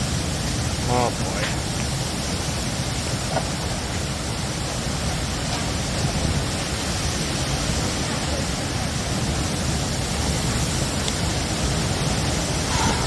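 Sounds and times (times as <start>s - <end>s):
heavy rain: 0.0s - 13.0s
strong wind: 0.0s - 13.0s
low thunder rumble: 12.4s - 13.0s.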